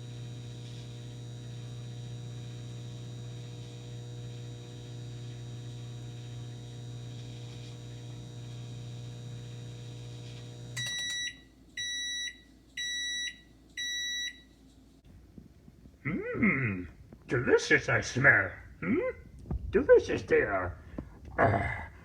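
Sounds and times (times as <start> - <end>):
microwave oven humming: 0.0 - 14.5
microwave beeping: 0.0 - 14.6.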